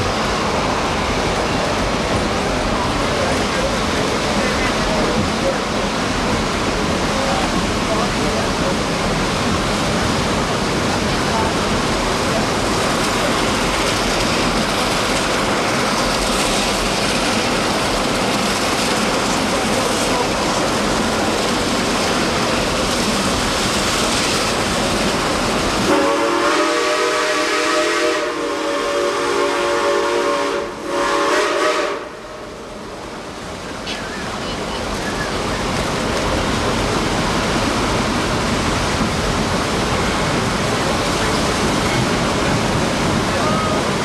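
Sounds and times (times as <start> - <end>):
train rushing: 0.0 - 44.0
steam locomotive whistle: 25.9 - 32.3.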